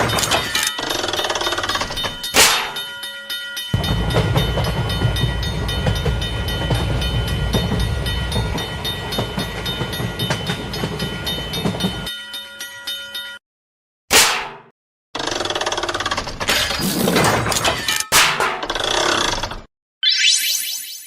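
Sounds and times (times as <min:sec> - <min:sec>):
level-crossing bell ringing: 0:00.0 - 0:13.4
train rumbling with clickety-clack: 0:03.7 - 0:12.1.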